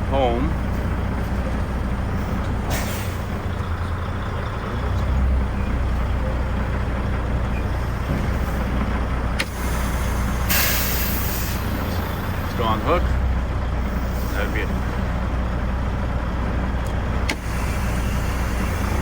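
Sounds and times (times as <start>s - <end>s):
diesel truck engine idling: 0.0s - 19.0s
air brake hiss: 2.7s - 3.3s, 9.4s - 12.0s, 17.3s - 19.0s.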